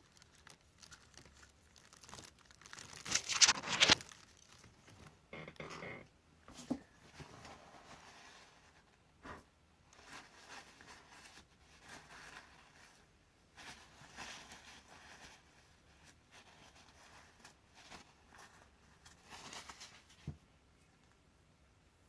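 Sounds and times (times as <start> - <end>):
rustling of birdseed: 9.9 - 20.2.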